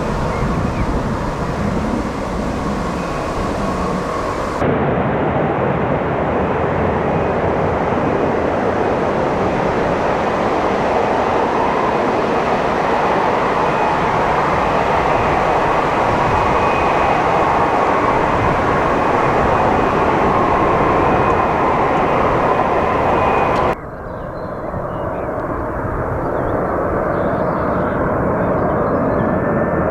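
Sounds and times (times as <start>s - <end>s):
faint high whine: 0.0s - 4.7s, 8.6s - 23.8s
jet engine rush: 0.0s - 23.8s.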